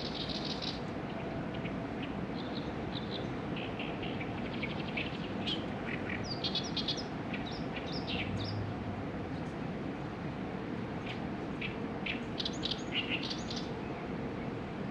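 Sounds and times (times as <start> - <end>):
small birds chirping: 0.0 - 8.6, 11.0 - 13.8
outdoor background noise: 0.0 - 14.9.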